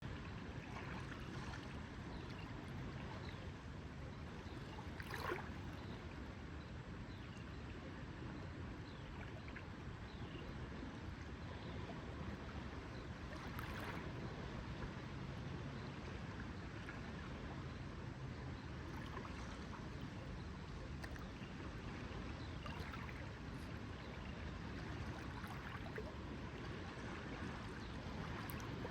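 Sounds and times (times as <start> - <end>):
water lapping: 0.2 - 3.5, 4.2 - 6.1, 11.4 - 17.7, 18.3 - 28.9
water splashes: 4.6 - 5.9, 13.3 - 14.5, 18.8 - 20.2, 20.8 - 28.9.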